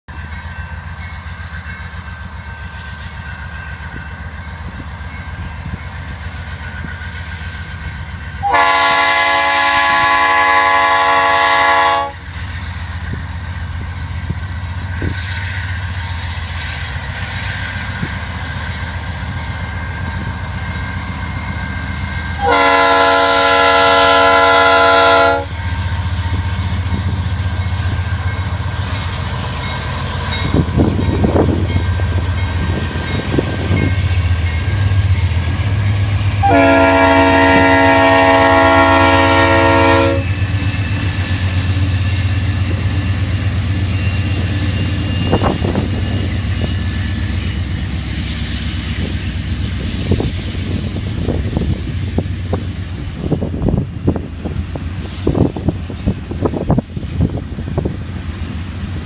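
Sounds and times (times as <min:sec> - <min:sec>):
diesel locomotives rumbling: 0:00.1 - 0:59.0
locomotive air horn blasts: 0:08.4 - 0:12.2, 0:22.4 - 0:25.5, 0:36.4 - 0:40.4.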